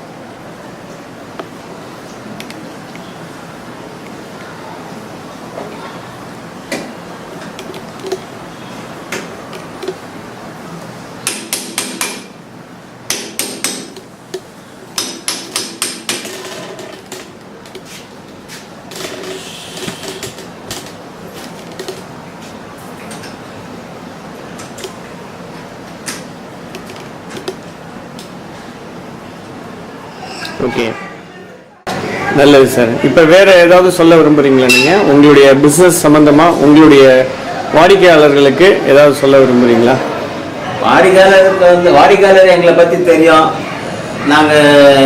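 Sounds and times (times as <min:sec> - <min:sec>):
hammer striking metal: 0:11.2 - 0:12.3, 0:13.1 - 0:14.0, 0:15.0 - 0:16.6, 0:34.7 - 0:35.1.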